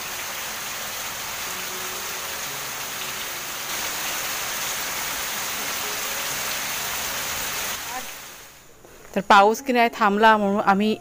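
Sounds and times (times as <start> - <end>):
heavy rain pouring: 0.0 - 8.6.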